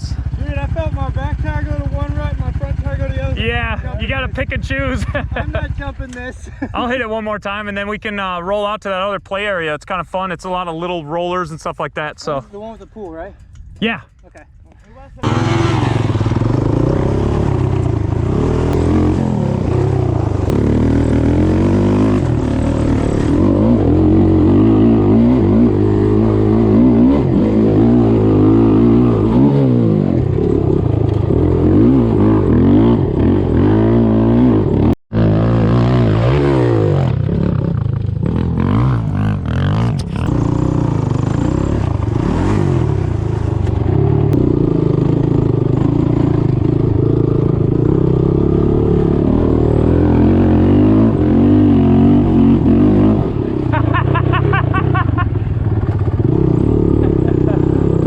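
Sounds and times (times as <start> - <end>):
off-road engine revving: 15.2 - 58.0.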